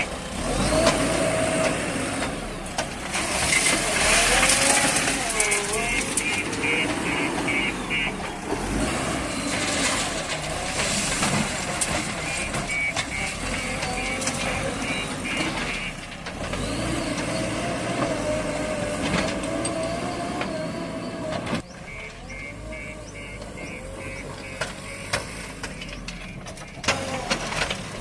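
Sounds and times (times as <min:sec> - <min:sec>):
diesel engine under load: 0:00.0 - 0:28.0
high beeping alarm: 0:05.5 - 0:08.2, 0:12.1 - 0:16.0, 0:21.8 - 0:26.8.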